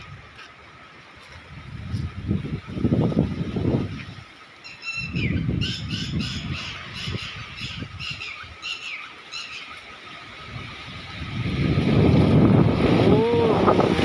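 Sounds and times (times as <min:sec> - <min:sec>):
wind gusting on microphone: 0:01.3 - 0:04.4, 0:05.0 - 0:08.7, 0:10.0 - 0:14.0.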